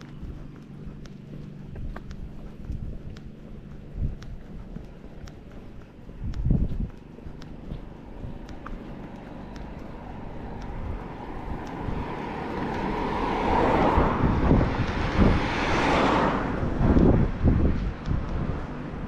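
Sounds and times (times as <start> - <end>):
vehicle driving past: 8.0 - 19.0
low thumps: 16.4 - 18.6.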